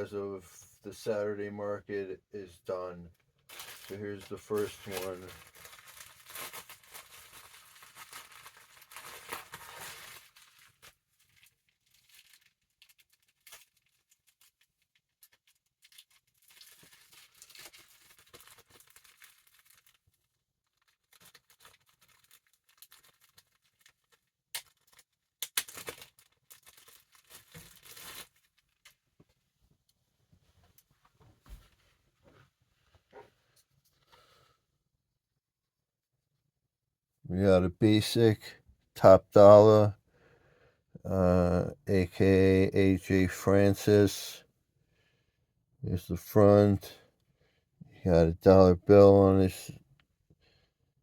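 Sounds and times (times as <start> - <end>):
packaging tearing and crinkling: 3.5 - 29.0.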